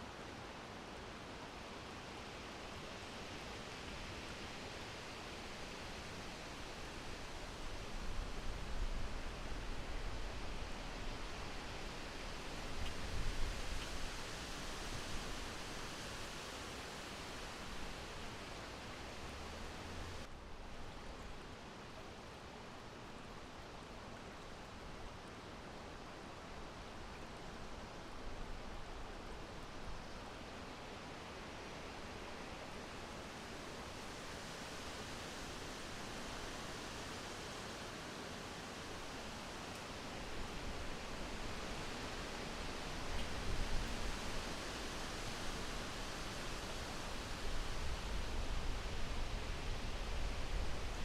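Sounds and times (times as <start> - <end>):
steady wind blowing: 0.0 - 24.0, 24.6 - 51.0.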